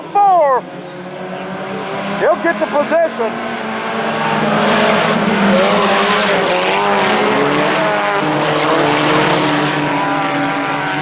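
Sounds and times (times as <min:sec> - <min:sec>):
race car engines: 0:00.0 - 0:11.0.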